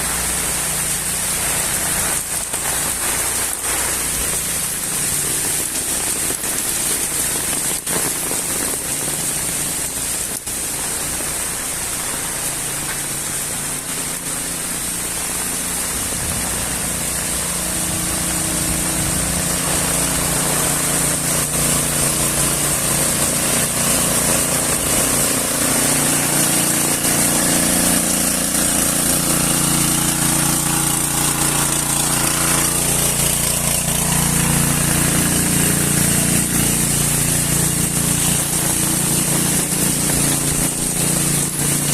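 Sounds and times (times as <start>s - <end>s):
heavy rain: 0.0s - 41.9s
vehicle engine hum: 0.0s - 41.9s.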